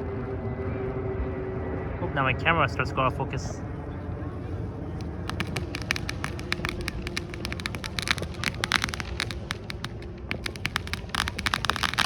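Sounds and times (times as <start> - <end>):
fireworks crackling and popping: 4.9 - 12.0.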